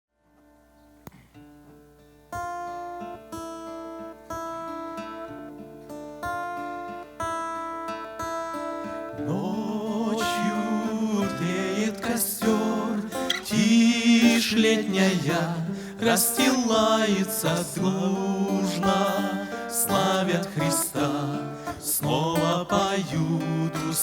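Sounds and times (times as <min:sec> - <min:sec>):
acoustic guitar chords ringing: 0:01.2 - 0:24.0
person singing wavering melody: 0:09.2 - 0:24.0.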